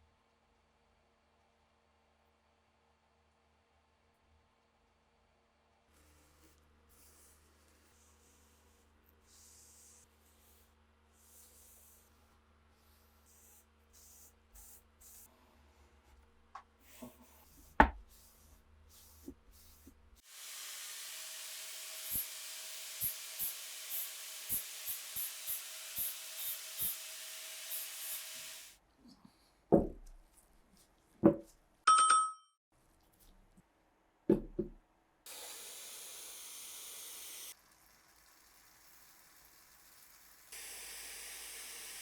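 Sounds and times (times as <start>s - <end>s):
spray hiss: 19.0s - 28.8s, 35.3s - 37.6s, 38.4s - 42.0s.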